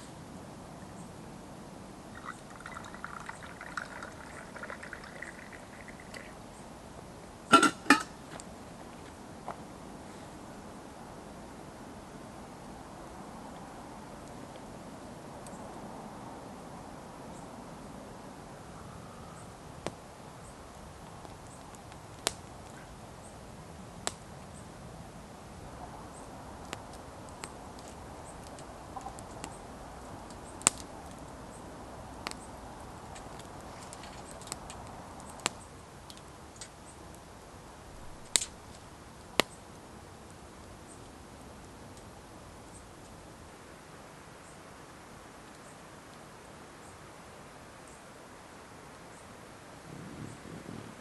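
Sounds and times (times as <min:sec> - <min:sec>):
steady hiss: 0:00.0 - 0:51.0
burning wood popping: 0:02.1 - 0:06.4, 0:20.6 - 0:22.8, 0:26.6 - 0:31.3, 0:32.1 - 0:37.2, 0:38.0 - 0:39.6
liquid pouring in thin stream: 0:02.1 - 0:06.4
wood fire crackling: 0:02.1 - 0:06.6, 0:18.7 - 0:24.6, 0:25.2 - 0:43.5.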